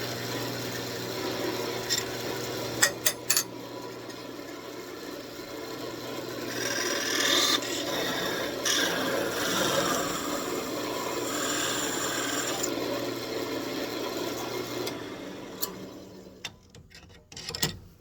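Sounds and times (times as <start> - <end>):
lathe motor hum: 0.0 - 2.8, 3.5 - 16.4
rag rubbing spinning wood: 6.5 - 12.7.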